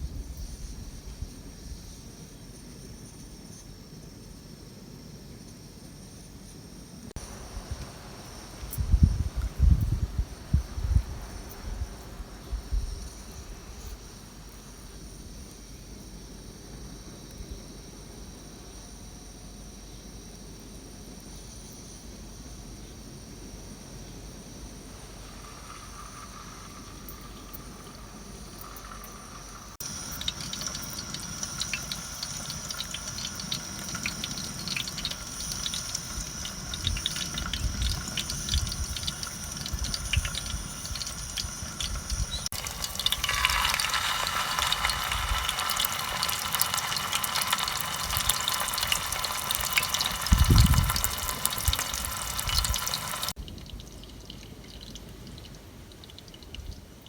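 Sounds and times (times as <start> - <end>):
water splashing: 24.9 - 56.5.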